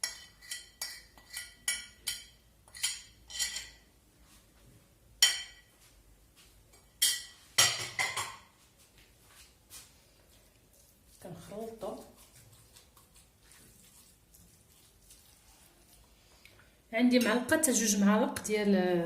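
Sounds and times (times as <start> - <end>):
spoon clinking against bowl: 0.0 - 3.8.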